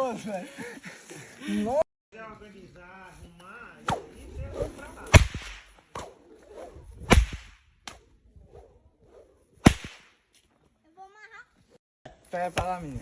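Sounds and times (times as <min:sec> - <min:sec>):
sharp whip cracks: 0:03.8 - 0:10.2.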